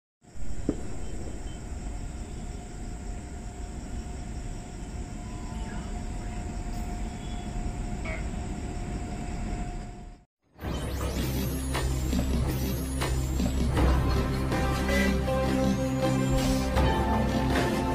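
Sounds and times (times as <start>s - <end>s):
high steady hiss: 0.2s - 9.5s
electric train rumbling: 0.5s - 10.2s, 11.0s - 17.9s.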